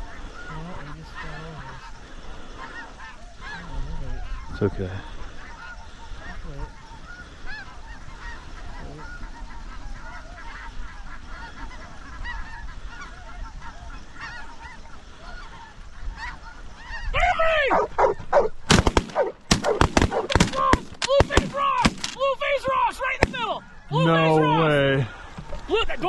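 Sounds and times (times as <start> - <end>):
geese honking: 0.0 - 26.0
shotgun shots: 18.6 - 22.2.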